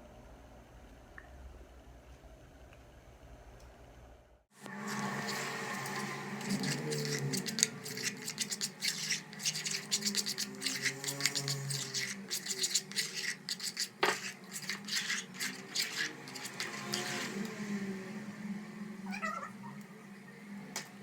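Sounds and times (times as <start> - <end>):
utensil scraping in a bowl: 4.6 - 17.6
cat meowing: 19.1 - 19.8.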